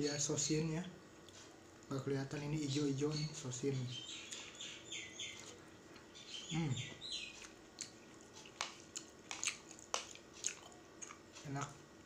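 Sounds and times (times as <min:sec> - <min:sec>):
person humming mmm: 0:06.5 - 0:06.9
wet lip smacking while chewing: 0:07.4 - 0:11.2.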